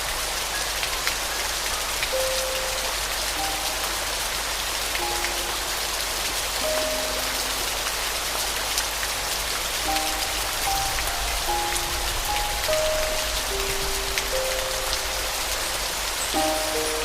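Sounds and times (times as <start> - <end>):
rain pattering: 0.0 - 17.0
soft piano melody: 0.0 - 17.0.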